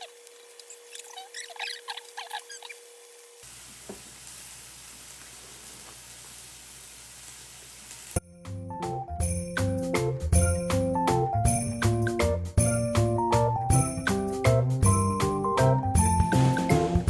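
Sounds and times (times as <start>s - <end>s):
food sizzling in a frying pan: 3.4s - 8.2s
light music with bell-like notes: 8.2s - 17.0s.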